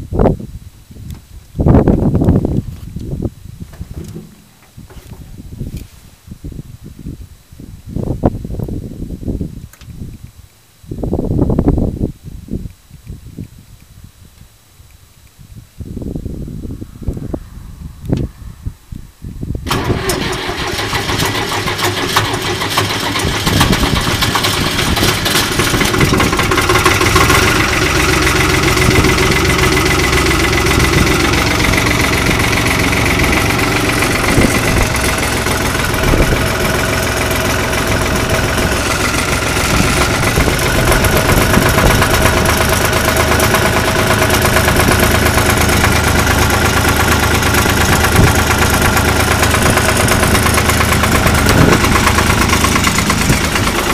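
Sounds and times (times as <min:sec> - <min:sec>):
diesel tractor engine starting: 0:03.7 - 0:05.9, 0:19.5 - 0:53.9.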